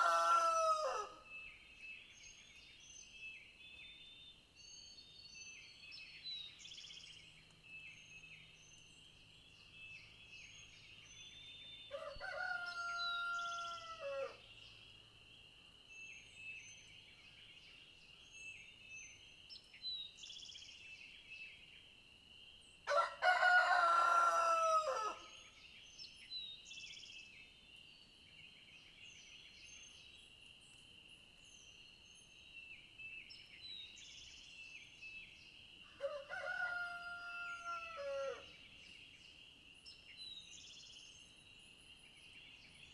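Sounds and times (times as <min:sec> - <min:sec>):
rooster crowing: 0:00.0 - 0:01.2, 0:11.9 - 0:14.4, 0:22.9 - 0:25.3, 0:36.0 - 0:38.5.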